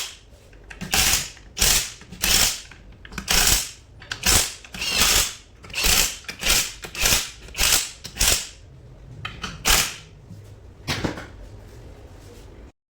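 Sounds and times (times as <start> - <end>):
ratchet wrench rasping: 0.8 - 8.6.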